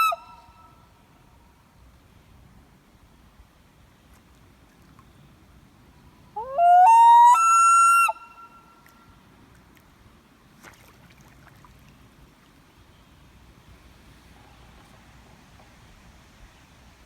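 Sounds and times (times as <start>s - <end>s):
loon wailing call: 6.4s - 8.6s.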